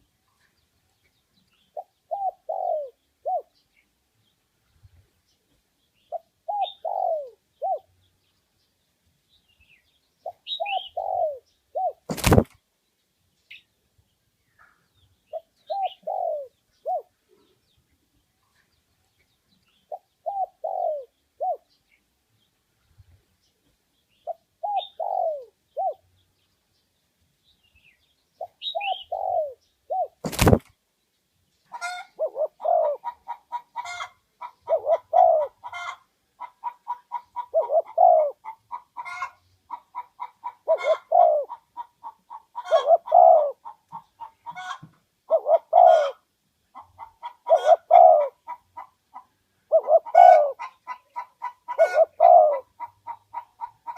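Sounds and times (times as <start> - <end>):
doves cooing: 1.7 - 3.6, 6.1 - 7.9, 10.2 - 12.5, 15.3 - 17.5, 19.9 - 21.7, 24.3 - 26.0, 28.4 - 30.6, 31.8 - 46.2, 46.8 - 53.9.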